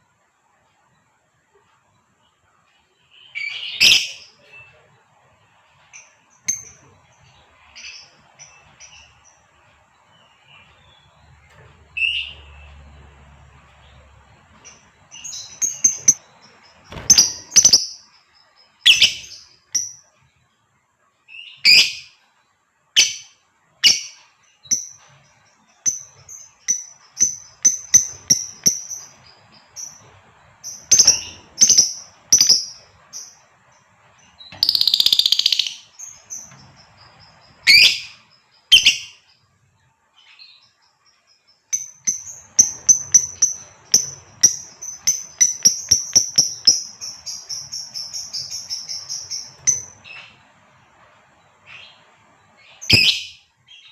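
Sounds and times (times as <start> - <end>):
harsh chattering bird call: 15.2 - 18.1
lovebird chirps and shrieks: 52.8 - 53.4.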